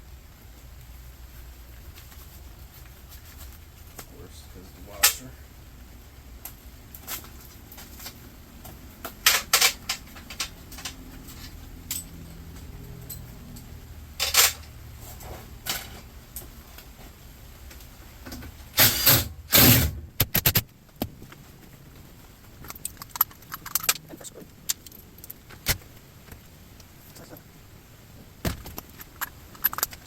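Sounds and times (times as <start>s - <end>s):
metal parts clanking and rattling: 9.0s - 16.1s, 18.3s - 20.6s, 28.6s - 30.0s
scattered clicks: 22.6s - 25.8s.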